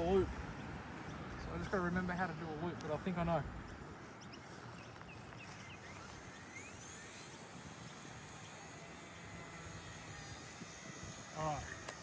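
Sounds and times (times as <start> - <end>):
small electric motor whine: 4.0 - 12.0.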